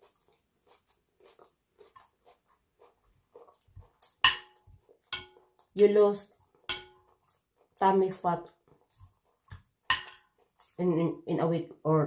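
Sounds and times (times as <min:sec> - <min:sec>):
person chewing salad: 0:00.0 - 0:10.8
knife and fork clinking on plate: 0:04.2 - 0:05.5, 0:06.7 - 0:07.0, 0:09.9 - 0:10.3.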